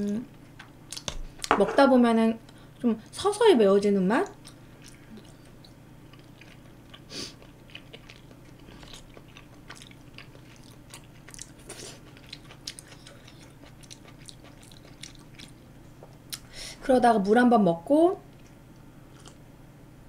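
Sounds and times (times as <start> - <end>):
faint low hum: 0.0 - 20.0
person chewing: 4.4 - 16.4, 18.3 - 19.4.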